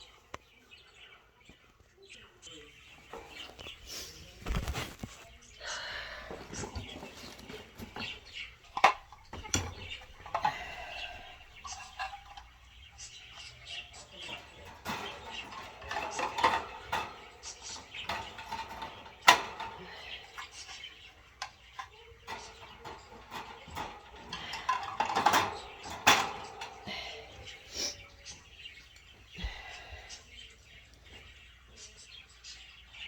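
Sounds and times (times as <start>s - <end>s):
metal clinks of wire cage parts: 6.3s - 29.1s.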